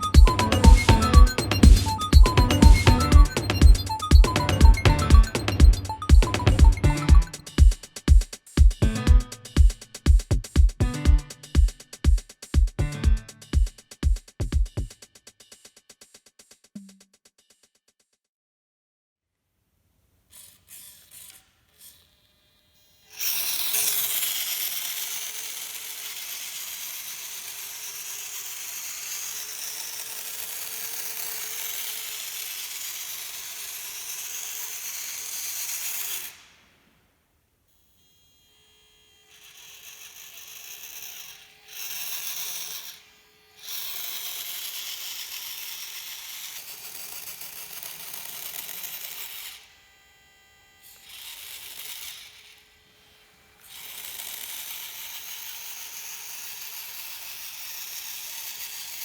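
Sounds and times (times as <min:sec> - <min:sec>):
toy car motor whining: 0:20.3 - 0:36.5, 0:37.8 - 0:59.0.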